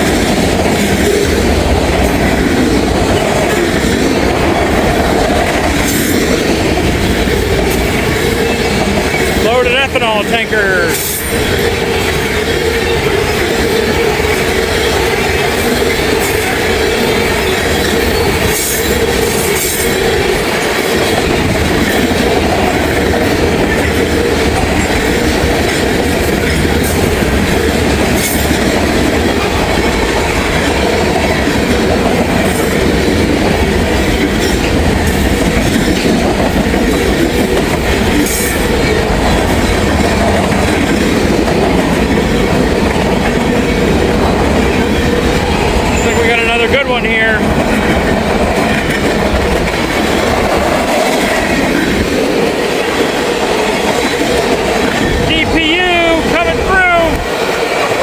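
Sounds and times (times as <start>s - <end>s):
clacks over rail joints: 0.0s - 58.0s
steel train wheels on rail: 0.0s - 58.0s
wheels squealing: 10.9s - 46.8s.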